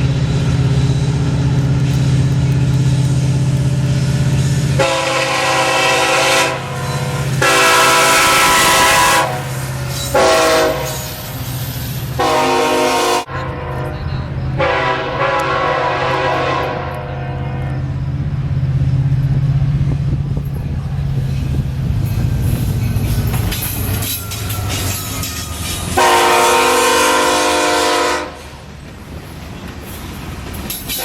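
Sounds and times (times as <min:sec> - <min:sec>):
diesel locomotive engine drone: 0:00.0 - 0:31.0
train air horn blasts: 0:04.8 - 0:11.2, 0:12.2 - 0:17.7, 0:25.8 - 0:28.6.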